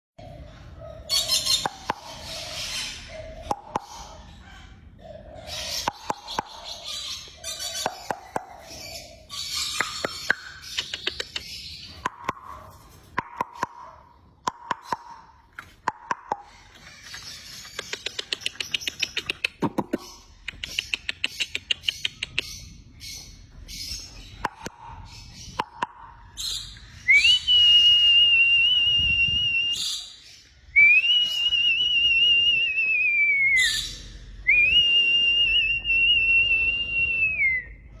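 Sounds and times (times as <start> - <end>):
parrot clicks and chirps: 1.5 - 2.3, 3.4 - 4.2, 5.8 - 6.8, 7.7 - 8.8, 9.5 - 22.8, 24.2 - 26.4
parrot high whistles: 30.8 - 37.7.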